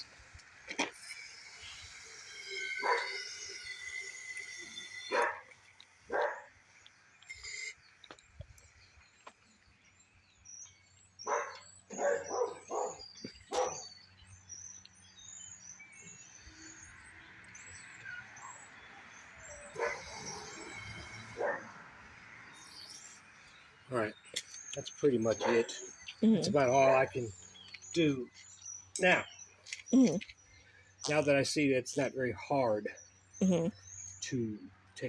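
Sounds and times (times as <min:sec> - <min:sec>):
small birds chirping faintly: 0:00.0 - 0:35.0
dog barking: 0:05.1 - 0:05.4, 0:06.1 - 0:06.5, 0:11.3 - 0:13.8, 0:19.8 - 0:20.3, 0:21.4 - 0:21.7, 0:25.4 - 0:25.7.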